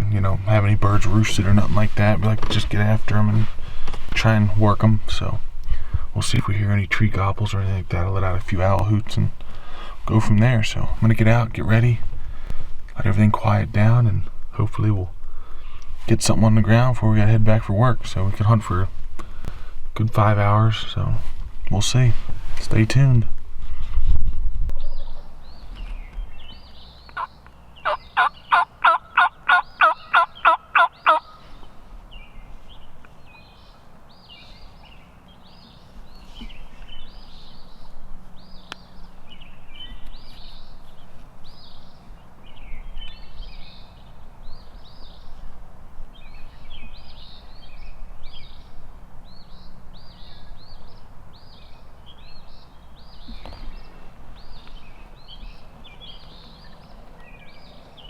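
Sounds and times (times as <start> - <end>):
songbirds singing: 0.0 - 58.0
turkey yelps: 27.2 - 31.4.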